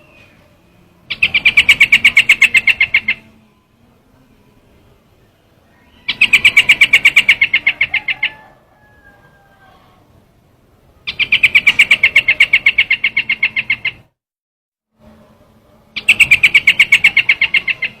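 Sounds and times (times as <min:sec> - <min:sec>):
bird chattering call: 0:01.1 - 0:03.3, 0:05.8 - 0:08.5, 0:11.1 - 0:14.1, 0:16.0 - 0:18.0.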